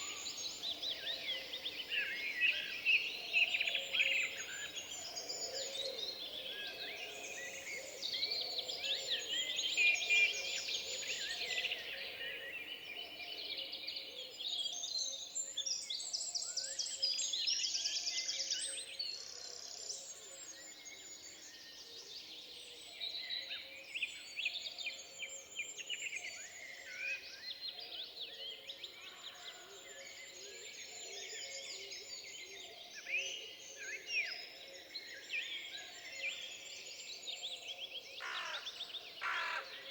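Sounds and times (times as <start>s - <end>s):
birds singing: 0.0s - 13.1s, 28.4s - 39.9s.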